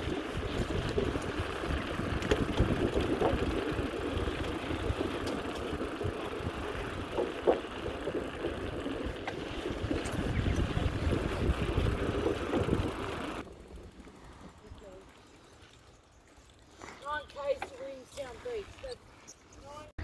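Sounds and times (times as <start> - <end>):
wind buffeting microphone: 0.0 - 15.1.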